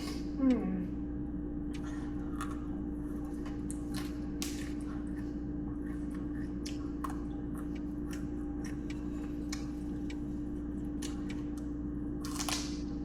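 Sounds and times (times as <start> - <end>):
steady low hum: 0.0 - 13.0
person chewing food: 1.7 - 13.0.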